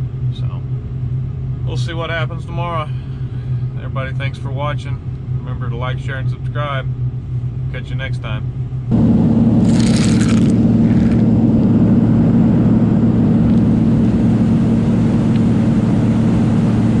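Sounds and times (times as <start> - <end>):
heavy farm machinery humming: 8.8 - 17.0.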